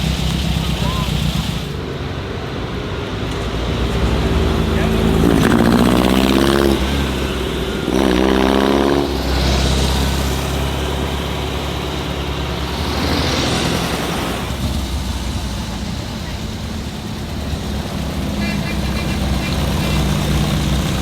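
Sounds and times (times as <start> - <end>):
old car engines passing: 0.0 - 21.0
steady low rumble: 9.0 - 21.0.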